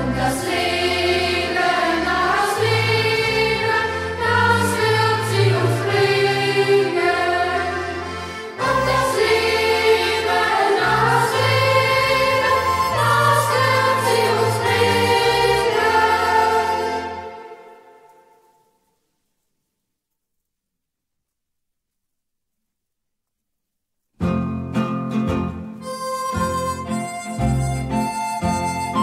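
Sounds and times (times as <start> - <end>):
youth choir singing: 0.0 - 18.0
low musical accompaniment: 0.0 - 18.8, 24.2 - 29.0.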